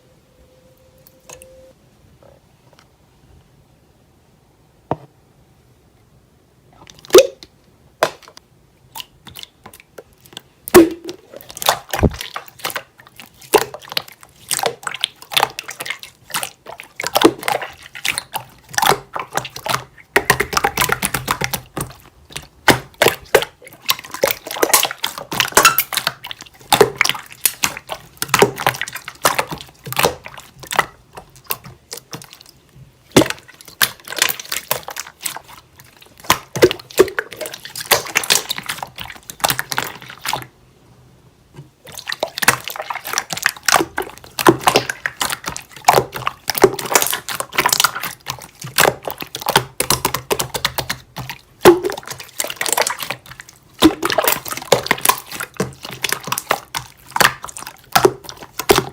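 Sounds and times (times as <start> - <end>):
sticky wet clicks and pops: 6.9 - 40.5, 41.9 - 58.9
slime squeezed by hand: 10.7 - 40.5.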